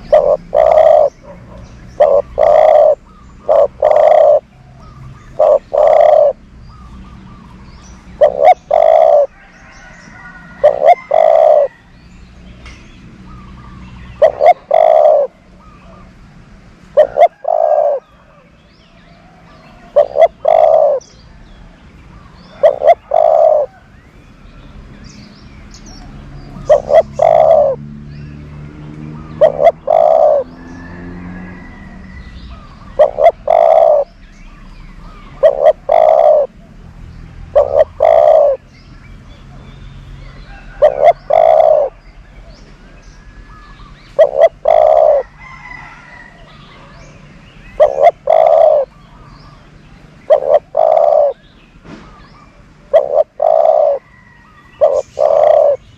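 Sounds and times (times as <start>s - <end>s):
dove cooing: 0.0s - 6.5s, 8.2s - 11.9s, 13.6s - 16.2s, 17.0s - 18.4s, 19.4s - 21.2s, 22.4s - 23.9s, 26.5s - 27.8s, 29.2s - 34.2s, 35.0s - 36.8s, 37.5s - 38.7s, 40.5s - 42.6s, 44.1s - 49.3s, 50.2s - 51.5s, 52.4s - 55.9s.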